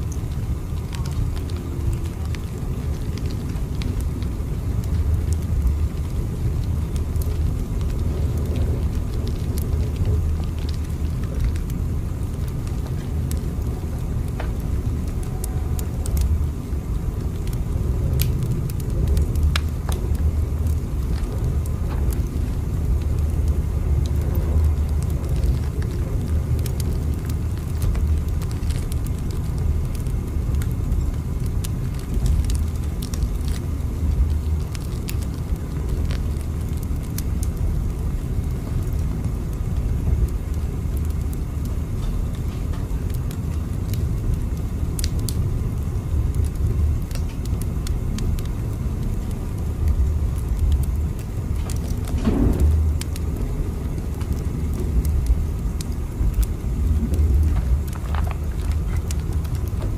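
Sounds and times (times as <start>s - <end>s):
faint clicks and crackles: 0.0s - 59.9s
train rumbling: 6.0s - 28.2s, 51.6s - 59.9s.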